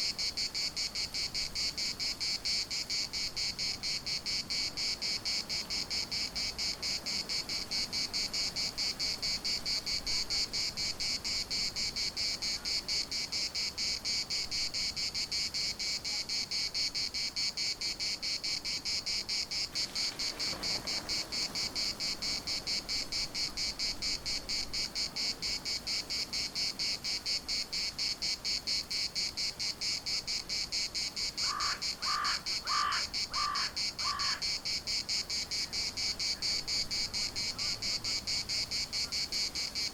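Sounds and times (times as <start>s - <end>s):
cicadas buzzing: 0.0s - 39.9s
bird calling: 31.4s - 34.6s.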